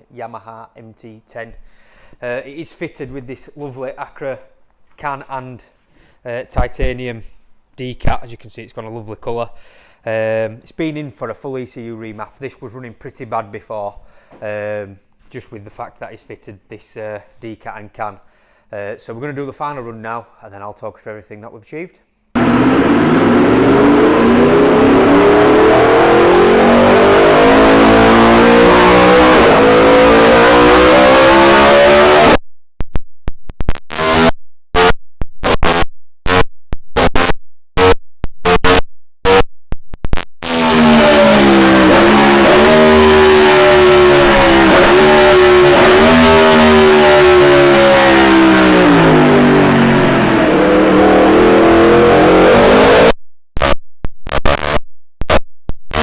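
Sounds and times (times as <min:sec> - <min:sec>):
motorcycle engine revving on dyno: 0:22.4 - 0:32.4, 0:40.4 - 0:53.2.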